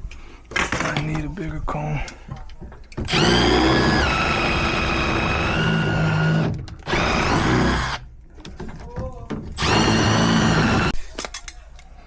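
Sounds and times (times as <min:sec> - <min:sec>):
power tool motor whining: 0:03.1 - 0:08.0, 0:09.6 - 0:11.0.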